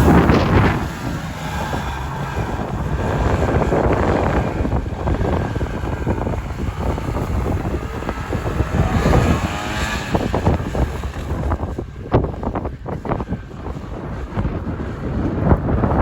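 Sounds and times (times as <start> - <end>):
snowmobile engine running: 0.0 - 16.0
wind buffeting microphone: 0.0 - 16.0.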